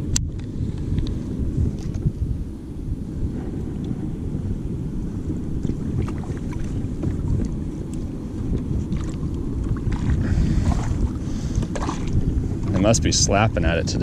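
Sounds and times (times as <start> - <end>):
wind rumbling on microphone: 0.0 - 14.0
water lapping: 5.6 - 13.5.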